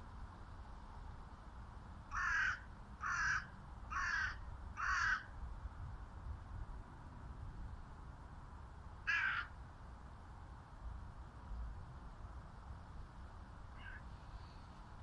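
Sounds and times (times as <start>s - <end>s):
bird calling: 13.7s - 14.6s.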